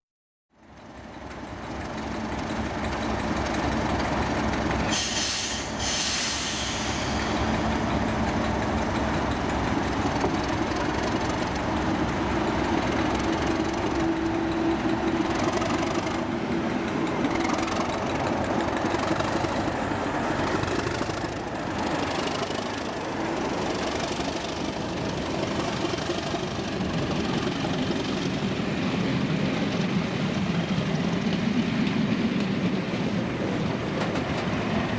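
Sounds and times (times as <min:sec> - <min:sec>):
diesel locomotives pulling away: 0:00.6 - 0:34.9
brief high hiss: 0:04.9 - 0:07.4.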